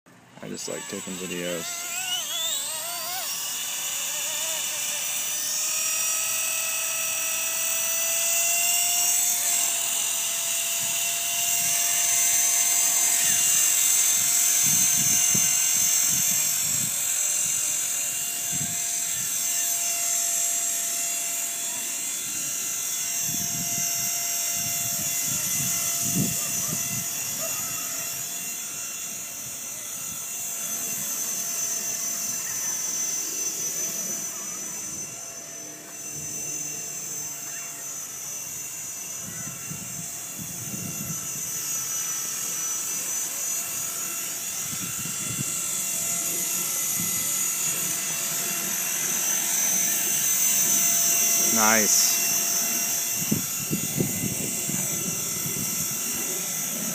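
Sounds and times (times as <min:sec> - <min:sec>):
rc helicopter motor whine: 0:00.1 - 0:56.9
wind buffeting microphone: 0:53.2 - 0:56.0.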